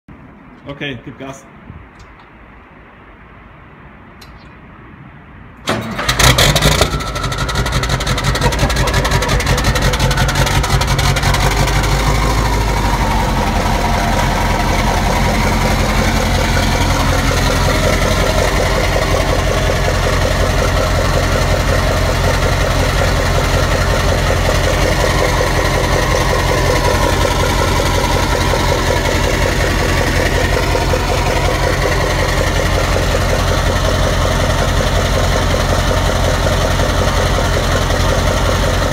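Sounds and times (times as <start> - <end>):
diesel truck engine starting: 5.6 - 38.9
loud diesel engine idling: 5.7 - 38.9.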